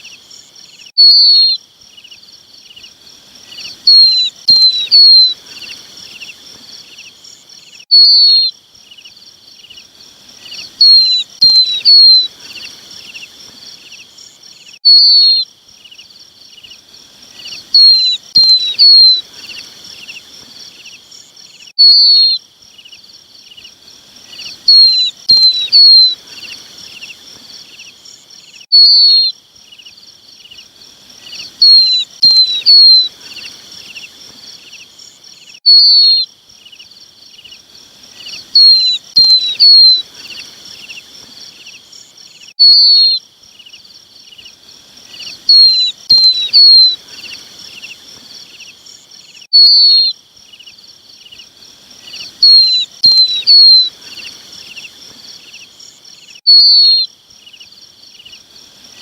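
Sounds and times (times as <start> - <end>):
faint high hiss: 0.0 - 59.0
bird chick calling: 3.6 - 6.3, 10.5 - 13.2, 17.4 - 20.2, 24.3 - 27.1, 31.3 - 34.0, 38.2 - 40.5, 45.2 - 48.0, 52.1 - 54.9.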